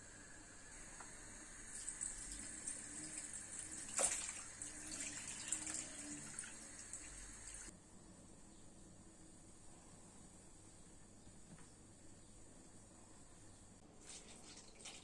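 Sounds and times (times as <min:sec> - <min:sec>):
water running from tap: 0:00.8 - 0:07.7.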